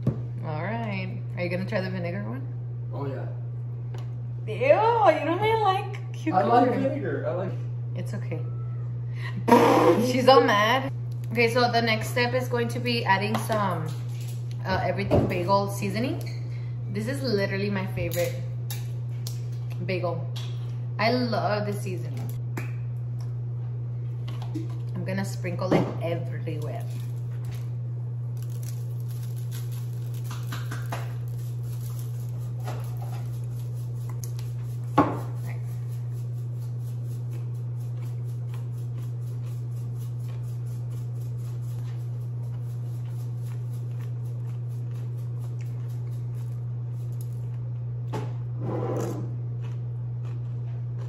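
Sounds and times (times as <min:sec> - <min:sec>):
steady low hum: 0:00.0 - 0:51.0
seasoning shaken from shaker: 0:13.2 - 0:14.5, 0:26.6 - 0:27.7, 0:28.3 - 0:47.4
kitchen clatter: 0:29.6 - 0:31.3.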